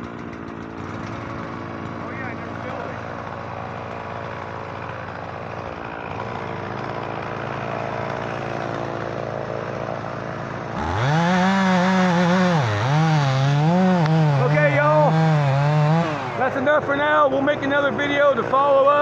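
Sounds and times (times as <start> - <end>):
chainsaw revving: 0.0 - 18.8
engine running steadily: 0.0 - 18.8.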